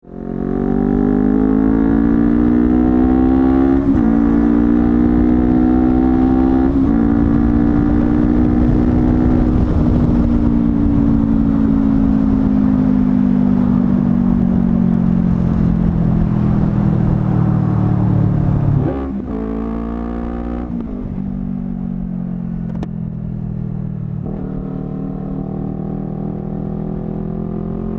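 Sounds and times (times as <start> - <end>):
motorcycle engine accelerating: 0.0 - 27.9.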